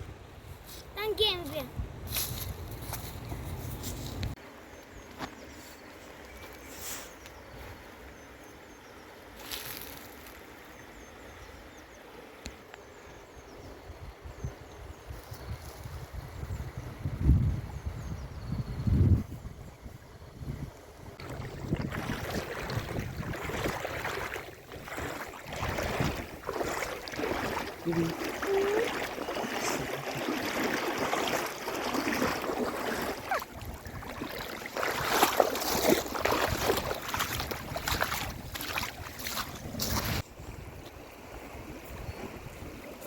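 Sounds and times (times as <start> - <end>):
wind buffeting microphone: 13.8 - 42.9.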